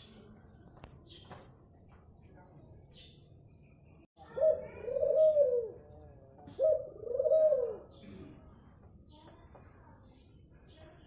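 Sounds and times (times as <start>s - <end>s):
dove cooing: 4.2s - 8.0s.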